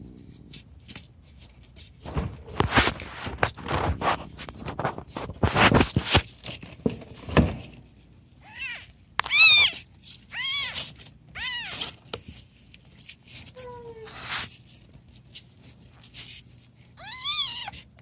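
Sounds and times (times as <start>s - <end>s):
rustling and knocking handling noises: 0.0s - 8.3s
cat meowing: 8.4s - 11.9s, 17.0s - 17.9s.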